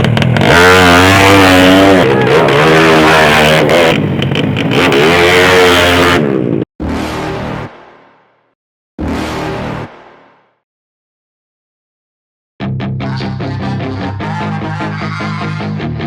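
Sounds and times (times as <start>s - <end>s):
motorcycle engine revving hard: 0.0s - 6.7s.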